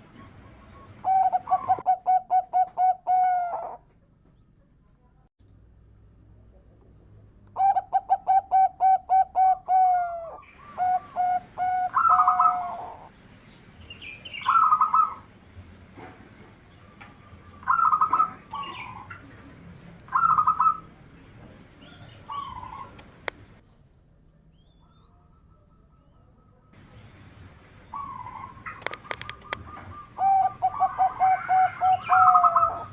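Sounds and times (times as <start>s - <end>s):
dove cooing: 0.0s - 3.9s, 7.6s - 13.1s, 14.3s - 15.3s, 16.9s - 19.4s, 20.1s - 21.0s, 21.8s - 23.3s, 27.9s - 32.9s.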